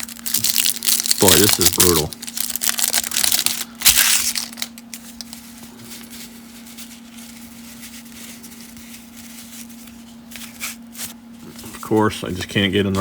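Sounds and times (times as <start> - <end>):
cellophane wrapper crinkling: 0.0 - 11.2
steady low hum: 0.0 - 13.0.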